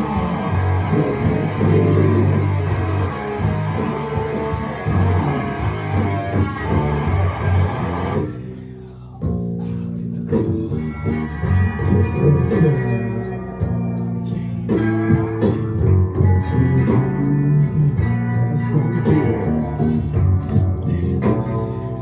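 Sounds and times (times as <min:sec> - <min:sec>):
live rock band playing: 0:00.0 - 0:08.5, 0:09.3 - 0:22.0.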